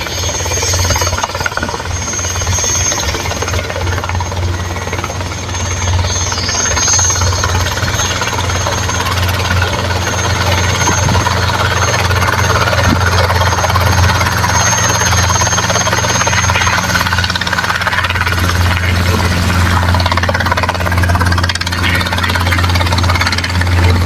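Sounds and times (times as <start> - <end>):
helicopter rotor chopping: 0.0 - 24.0
high-pitched turbine whine: 0.0 - 24.0.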